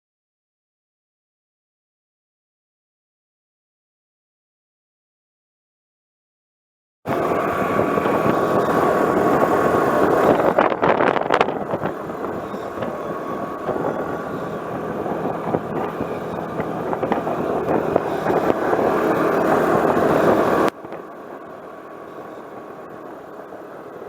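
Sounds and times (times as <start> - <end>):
vehicle road and wind noise: 7.1 - 24.0.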